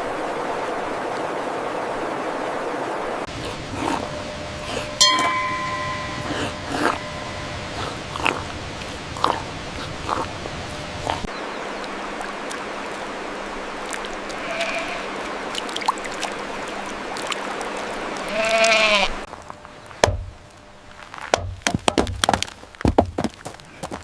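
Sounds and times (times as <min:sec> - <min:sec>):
steady rushing hiss: 0:03.1 - 0:15.6
animal bleating: 0:14.4 - 0:15.1, 0:18.2 - 0:19.2
sharp knocks: 0:20.0 - 0:20.4, 0:21.3 - 0:23.3.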